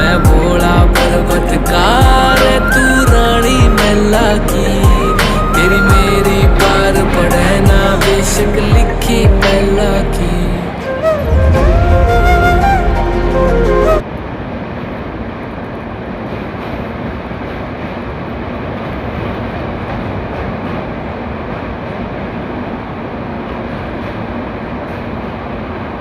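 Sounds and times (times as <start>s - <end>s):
music with singing: 0.0s - 14.0s
moving train running noise: 0.0s - 26.0s.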